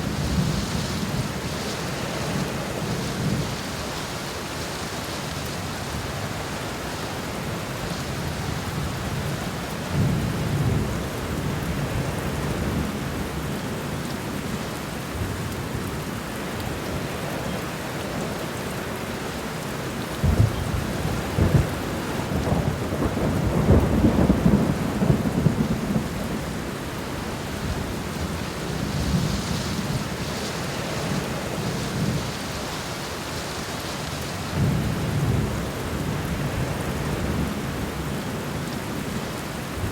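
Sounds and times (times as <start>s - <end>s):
steady rain on ground: 0.0s - 39.9s.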